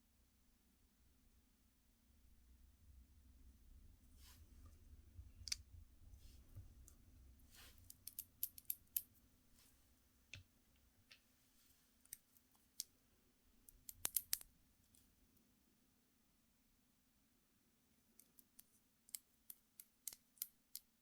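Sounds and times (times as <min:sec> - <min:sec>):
small clicks and taps: 0:13.7 - 0:14.5, 0:18.2 - 0:20.9.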